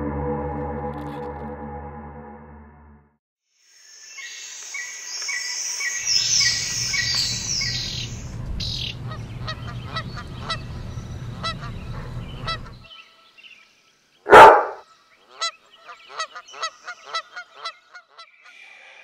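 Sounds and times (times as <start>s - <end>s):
bird honking calls: 7.0s - 13.4s, 14.3s - 18.6s
low steady rumble: 7.4s - 12.8s.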